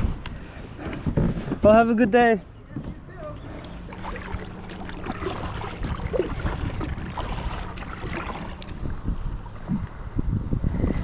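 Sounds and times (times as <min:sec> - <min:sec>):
wind buffeting microphone: 0:00.0 - 0:11.0
water lapping at hull: 0:03.2 - 0:10.6
water splashing: 0:03.3 - 0:09.9.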